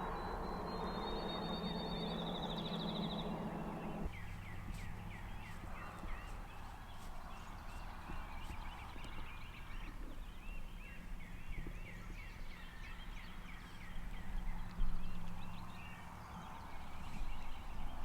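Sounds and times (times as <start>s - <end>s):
low steady rumble: 0.0s - 5.8s
bird chirping: 0.0s - 18.0s.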